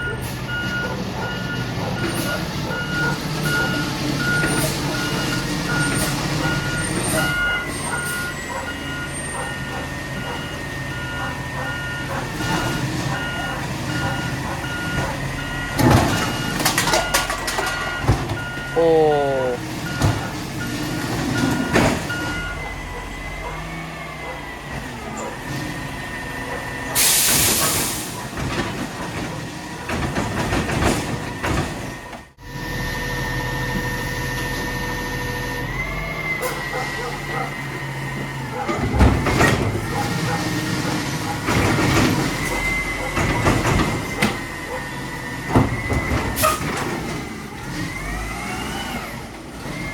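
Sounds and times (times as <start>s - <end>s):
backup alarm beeping: 0.0s - 23.9s
garbage truck clattering: 0.0s - 32.4s, 35.7s - 49.9s
diesel engine running: 0.0s - 49.9s
hydraulic hissing: 26.8s - 28.3s.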